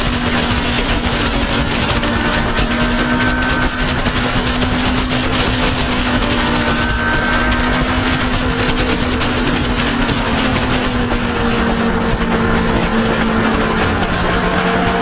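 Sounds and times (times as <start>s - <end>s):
motorcycle engine droning: 0.0s - 15.0s
wind noise on microphone: 0.0s - 15.0s.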